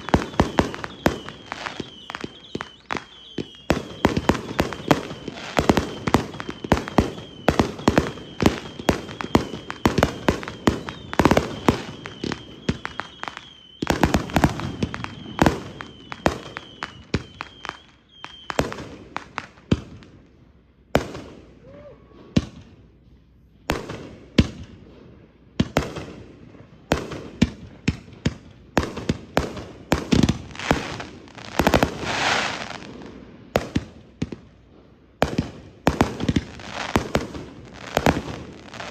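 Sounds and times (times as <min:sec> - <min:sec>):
thin high whistle: 0:00.0 - 0:18.6
hissing crackling firework burst: 0:00.0 - 0:19.4, 0:29.9 - 0:33.9, 0:35.3 - 0:38.9
firework cakes firing: 0:00.0 - 0:38.9.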